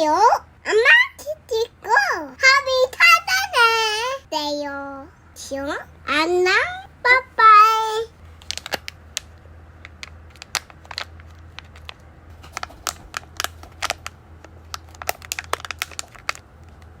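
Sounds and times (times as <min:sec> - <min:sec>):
steady low hum: 0:00.0 - 0:17.0
light clicks and crinkles: 0:08.3 - 0:17.0.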